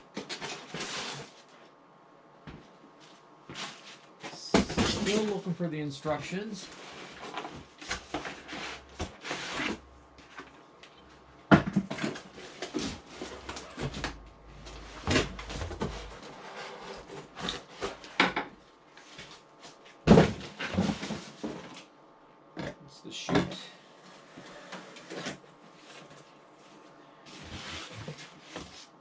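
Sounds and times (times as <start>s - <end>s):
cardboard rustling and scraping: 0.2s - 1.7s, 2.5s - 5.6s, 6.6s - 10.6s, 11.7s - 18.2s, 19.0s - 21.9s, 24.1s - 29.0s.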